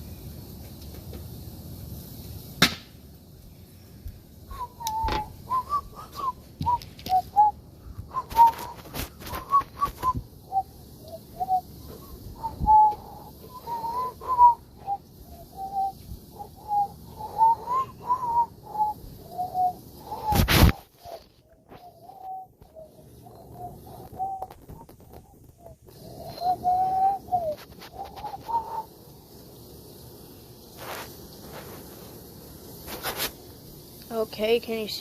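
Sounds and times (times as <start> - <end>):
short whistled notes: 4.5 - 10.6, 11.4 - 15.0, 16.6 - 22.5, 26.2 - 28.9.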